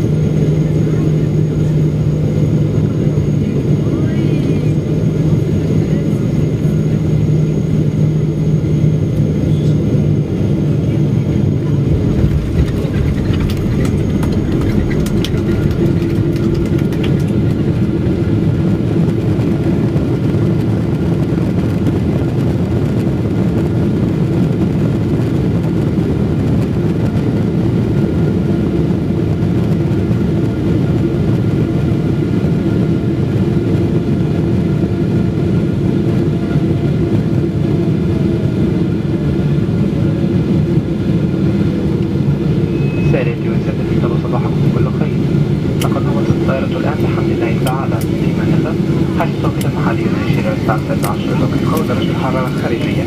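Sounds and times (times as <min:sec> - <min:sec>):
jet engine cabin roar: 0:00.0 - 0:53.0
steady hum: 0:03.4 - 0:19.6, 0:42.1 - 0:53.0.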